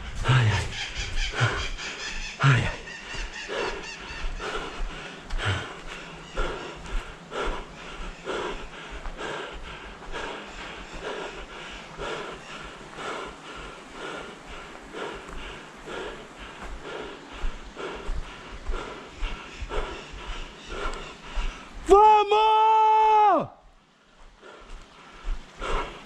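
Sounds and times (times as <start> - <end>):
person breathing hard: 0.0 - 22.0, 23.6 - 26.0.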